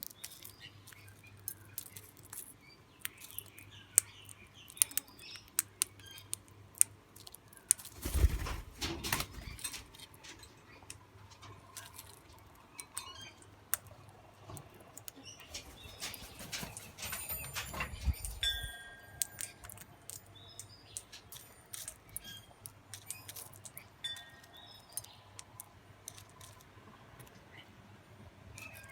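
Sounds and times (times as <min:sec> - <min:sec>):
small birds flapping wings: 0:07.8 - 0:10.2, 0:15.4 - 0:18.8.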